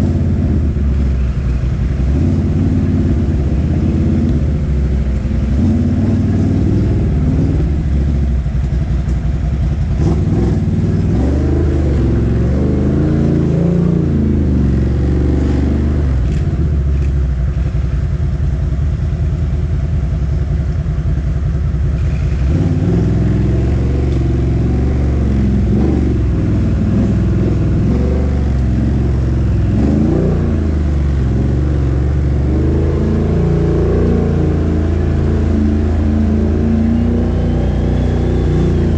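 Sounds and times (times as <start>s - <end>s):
quad bike engine revving: 5.5s - 8.0s, 10.0s - 16.4s, 22.0s - 38.9s.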